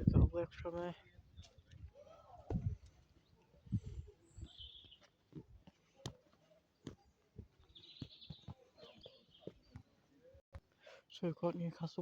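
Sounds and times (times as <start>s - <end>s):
faint bird chirping: 3.1s - 5.2s, 6.5s - 10.4s.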